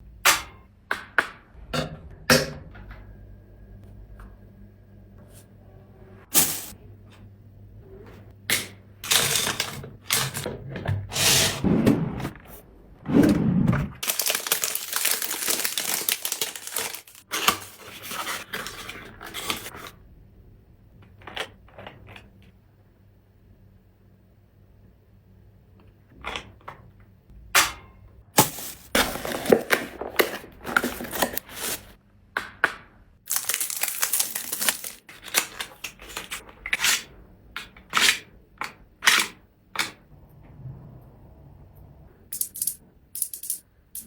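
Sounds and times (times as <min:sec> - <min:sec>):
packaging rustling and crinkling: 0:14.0 - 0:19.7, 0:28.4 - 0:32.0, 0:33.3 - 0:36.4.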